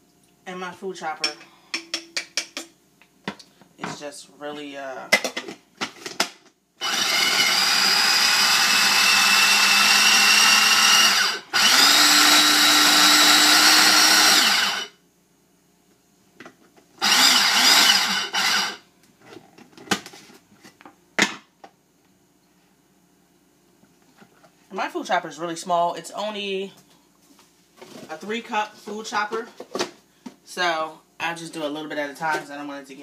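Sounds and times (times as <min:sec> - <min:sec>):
electric food chopper running: 0:06.8 - 0:15.0, 0:17.0 - 0:18.8.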